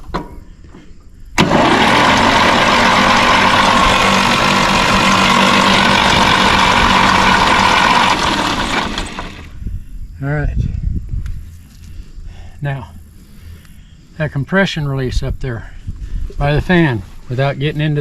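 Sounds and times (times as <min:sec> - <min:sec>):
starter motor whining: 0:01.4 - 0:09.6.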